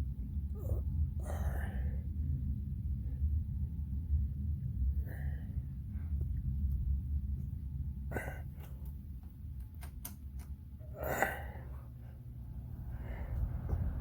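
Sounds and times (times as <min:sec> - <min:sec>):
box fan running: 0:01.7 - 0:14.0
sharp clicks: 0:09.6 - 0:10.6.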